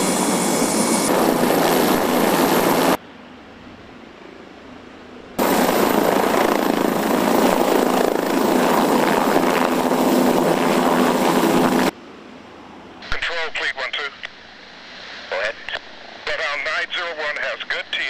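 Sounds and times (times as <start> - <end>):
helicopter engine and rotor: 0.0 - 3.0, 5.4 - 11.9
faint hiss: 12.3 - 18.0.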